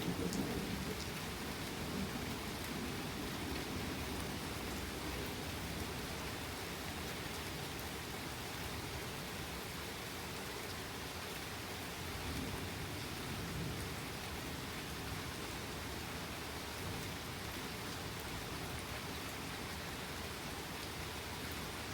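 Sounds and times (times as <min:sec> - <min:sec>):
faint low thunder rumble: 0:00.0 - 0:04.4
heavy rain: 0:00.0 - 0:21.9.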